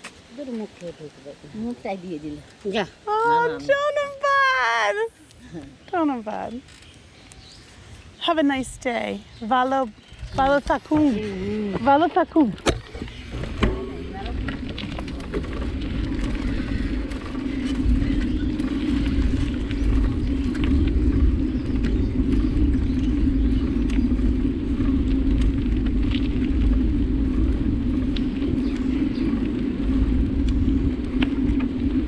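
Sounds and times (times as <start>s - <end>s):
constant hum: 0.0s - 32.0s
wind rumble: 0.2s - 32.0s
small rattles and clicks: 10.0s - 32.0s.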